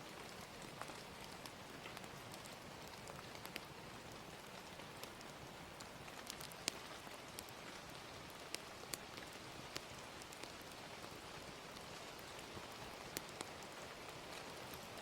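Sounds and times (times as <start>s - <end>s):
gentle rain hiss: 0.0s - 15.0s
wood fire crackling and popping: 0.0s - 15.0s.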